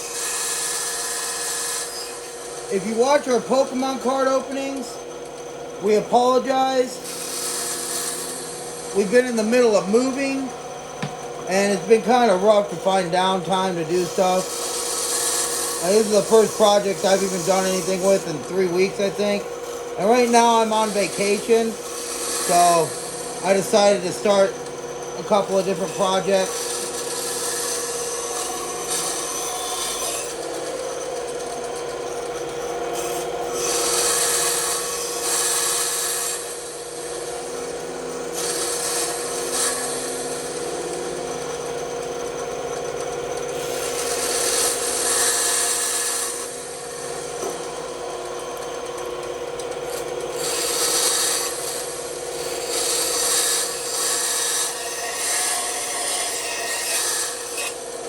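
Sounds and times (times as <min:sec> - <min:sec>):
bandsaw humming: 0:00.0 - 0:58.0
blade cutting wood hiss: 0:20.0 - 0:24.0, 0:38.4 - 0:40.6.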